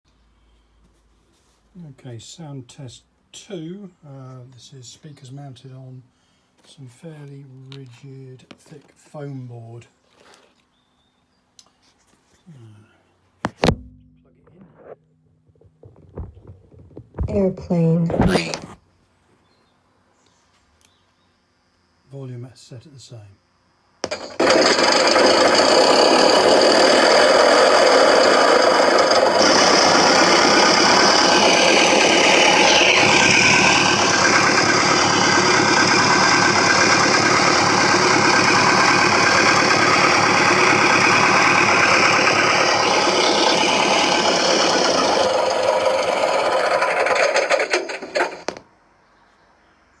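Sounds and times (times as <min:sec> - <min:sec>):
simulated airplane engine: 0:24.0 - 0:48.6.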